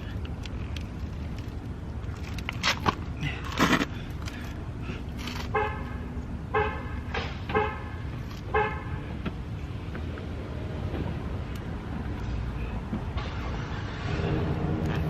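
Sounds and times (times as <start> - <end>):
steady outdoor hum: 0.0 - 15.0
car horn tooting: 7.5 - 7.9.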